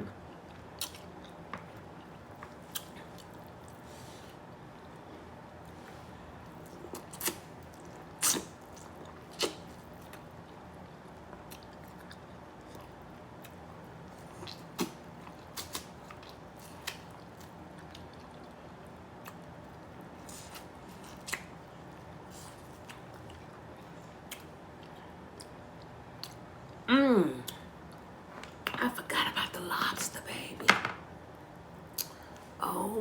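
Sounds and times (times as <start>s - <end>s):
person chewing: 0.4s - 3.8s, 6.4s - 10.6s, 11.4s - 18.6s, 19.2s - 19.5s, 20.2s - 26.4s.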